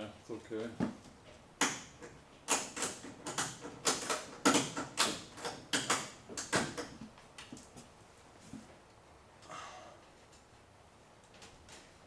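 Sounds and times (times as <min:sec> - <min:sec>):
mechanical clicks and knocks: 0:01.6 - 0:07.0.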